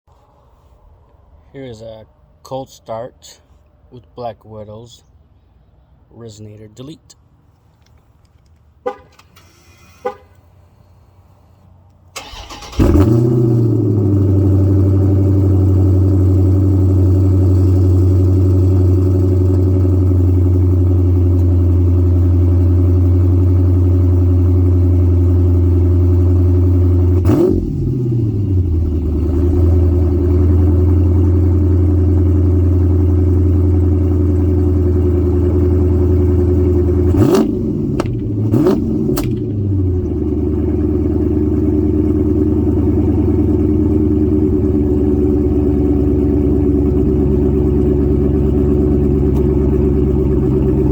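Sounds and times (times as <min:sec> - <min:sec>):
car engine cranking and starting: 0:07.8 - 0:10.1, 0:12.0 - 0:50.9
car engine fast idle: 0:12.2 - 0:27.0, 0:39.1 - 0:50.9.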